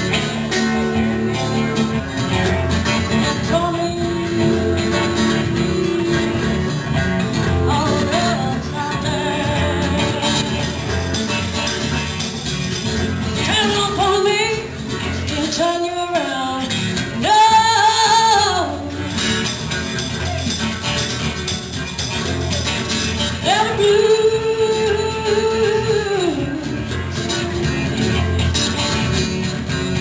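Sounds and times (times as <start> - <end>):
steady guitar accompaniment: 0.0 - 30.0.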